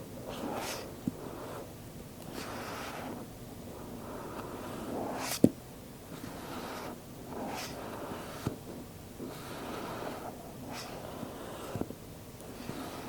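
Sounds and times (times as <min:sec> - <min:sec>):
box lid swishing: 0:04.9 - 0:05.6, 0:06.2 - 0:08.7, 0:09.3 - 0:11.9.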